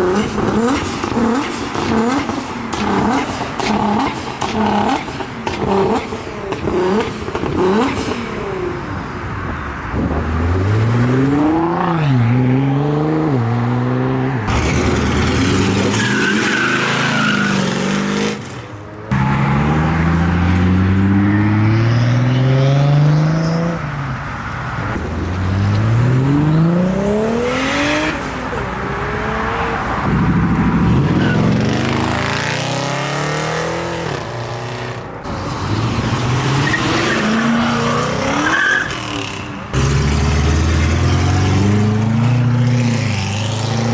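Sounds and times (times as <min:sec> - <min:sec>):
loud cars accelerating hard: 0:00.0 - 0:43.9.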